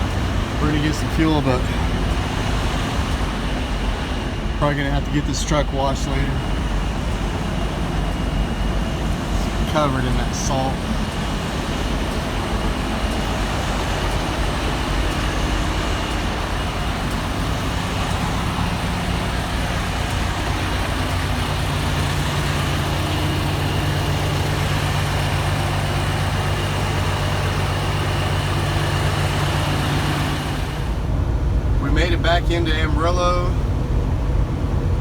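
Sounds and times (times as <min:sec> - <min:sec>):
truck diesel engine driving: 0:00.0 - 0:35.0.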